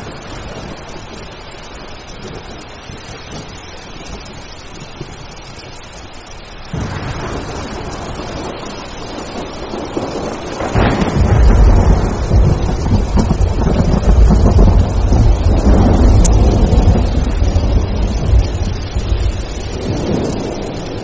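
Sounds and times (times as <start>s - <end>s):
thunder rumbling: 0.0s - 5.3s, 6.7s - 21.0s
steady rain: 0.0s - 21.0s.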